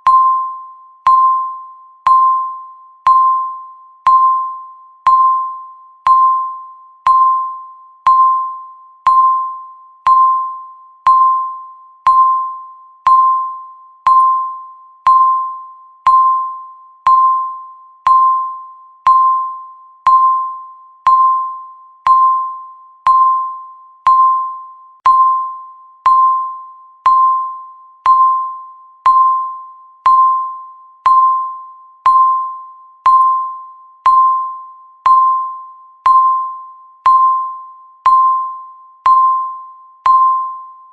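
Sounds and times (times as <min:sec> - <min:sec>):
bell-like timer ticks: 0:00.0 - 0:40.9.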